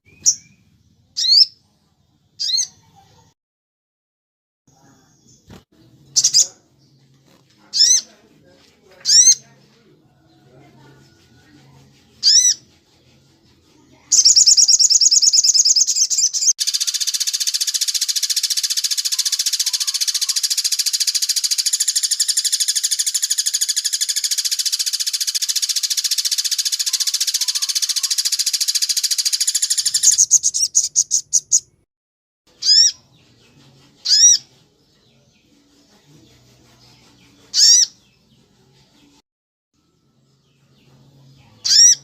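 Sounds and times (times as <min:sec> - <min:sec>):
sharp high bird calls: 0:01.2 - 0:01.5, 0:14.1 - 0:31.8, 0:32.6 - 0:33.0, 0:34.0 - 0:34.5, 0:37.5 - 0:38.0, 0:41.6 - 0:42.0
rapid bird trill: 0:12.2 - 0:12.6, 0:14.1 - 0:31.8, 0:32.5 - 0:33.0, 0:34.0 - 0:34.5, 0:37.5 - 0:38.0, 0:41.6 - 0:42.0.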